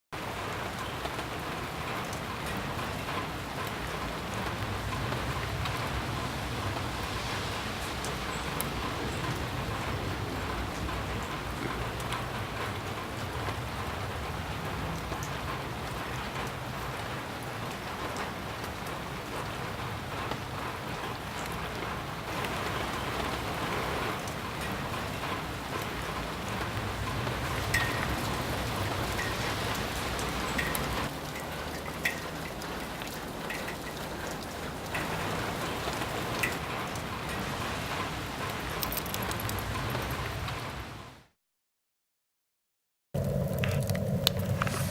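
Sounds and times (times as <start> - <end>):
rain pattering on surfaces: 0.2 - 41.4, 43.2 - 44.9
single raindrop ticks: 26.6 - 37.4, 38.4 - 40.2.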